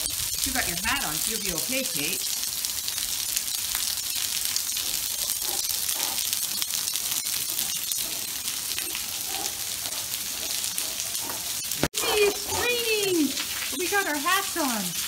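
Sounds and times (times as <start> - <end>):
rain falling on stone paving: 0.0 - 15.0.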